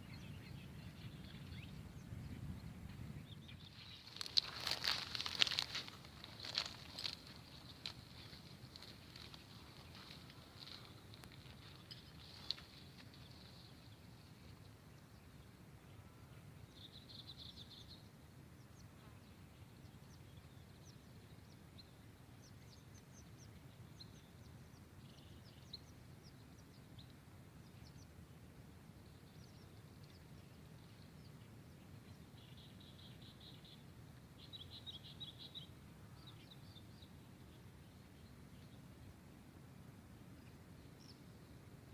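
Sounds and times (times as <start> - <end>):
small birds chirping and trilling: 0.0 - 15.6, 28.9 - 38.9
low steady background hiss: 0.0 - 41.9.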